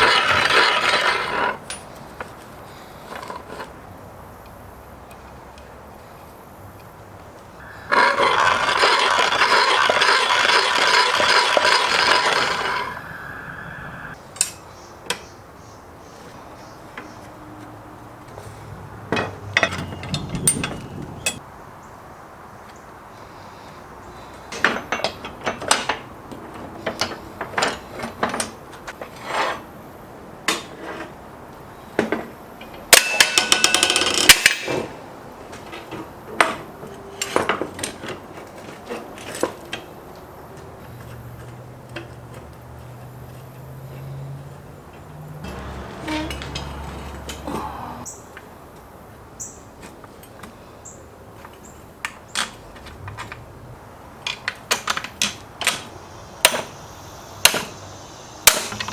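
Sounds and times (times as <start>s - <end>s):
fast metal rattle: 7.7s - 13.2s
metal tools knocking and clicking: 19.1s - 21.4s, 32.9s - 34.9s.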